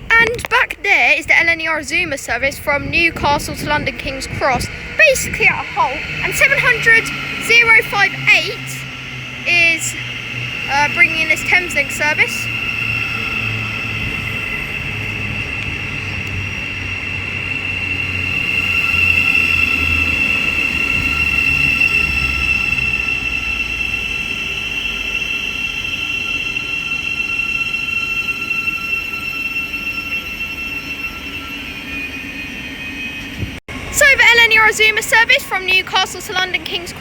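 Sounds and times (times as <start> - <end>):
electric train slowing: 0.0 - 37.0
low rumble: 1.2 - 27.2
high-pitched whine: 1.3 - 37.0.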